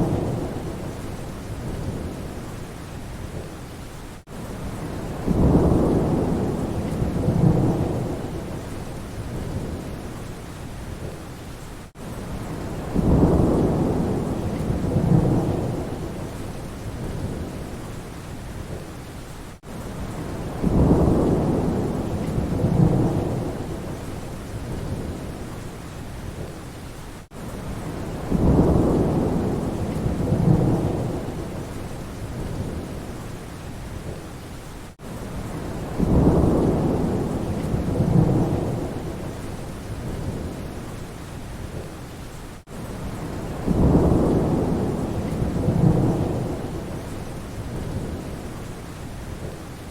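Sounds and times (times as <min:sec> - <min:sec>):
rolling thunder: 0:00.0 - 0:02.4, 0:04.7 - 0:10.0, 0:12.3 - 0:17.8, 0:20.0 - 0:25.4, 0:27.7 - 0:33.1, 0:35.4 - 0:40.8, 0:43.0 - 0:48.5
rain falling steadily: 0:00.0 - 0:49.9.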